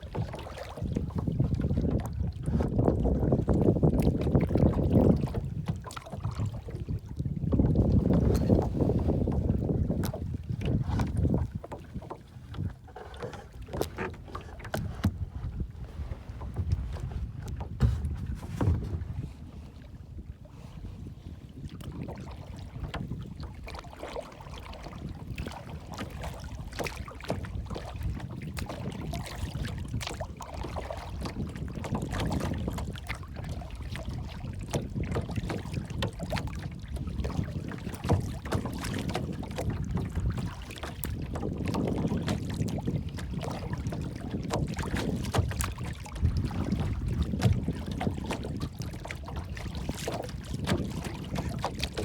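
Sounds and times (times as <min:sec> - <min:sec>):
water lapping and splashing: 0:00.0 - 0:52.0
wind rumble on microphone: 0:00.0 - 0:52.0.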